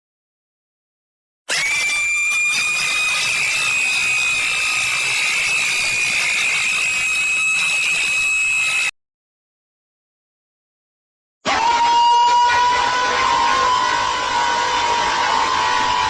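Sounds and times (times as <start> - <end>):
raspy high-pitched screech: 1.5 - 8.9.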